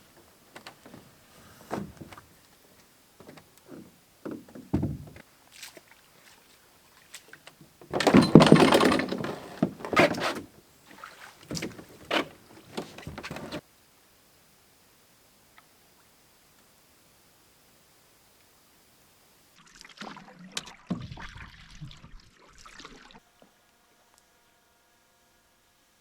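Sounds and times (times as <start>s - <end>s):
gear knocks and clunks: 3.2s - 5.2s, 7.8s - 10.5s, 11.4s - 13.6s.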